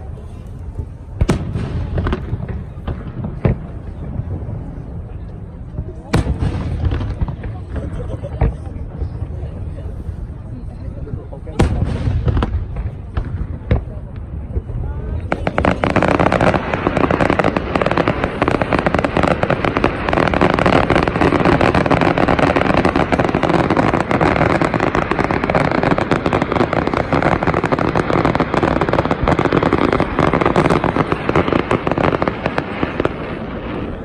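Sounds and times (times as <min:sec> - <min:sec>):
fireworks bursting and crackling: 0:00.0 - 0:34.0.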